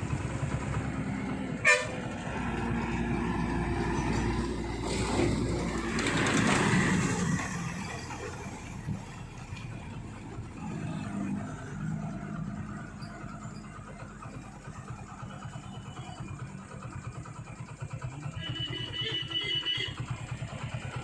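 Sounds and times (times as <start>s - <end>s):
truck diesel engine running: 0.0s - 21.0s
truck horn toot: 1.6s - 2.2s, 18.3s - 20.1s.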